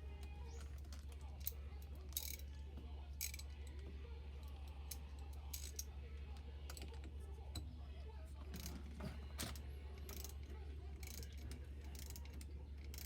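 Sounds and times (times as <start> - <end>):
wrench clicking on metal clamp: 2.1 - 2.5, 10.0 - 13.0.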